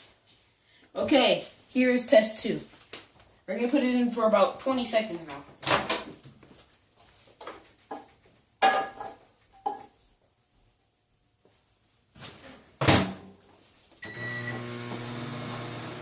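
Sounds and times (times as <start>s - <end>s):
microwave humming: 14.0s - 16.0s.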